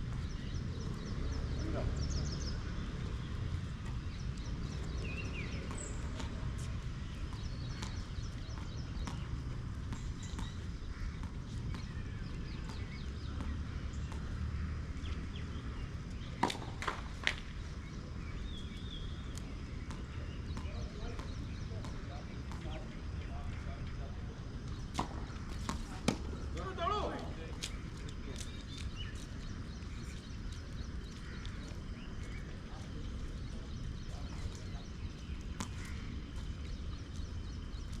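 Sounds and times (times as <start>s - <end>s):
birds chirping: 0.0s - 38.0s
tennis ball knocks: 16.4s - 17.4s.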